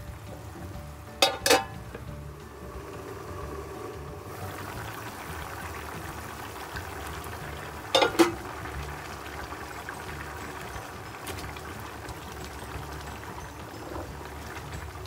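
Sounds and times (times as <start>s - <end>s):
stew bubbling in a pan: 0.0s - 15.0s
metal lid clinking against pan: 1.2s - 1.8s, 7.9s - 8.4s.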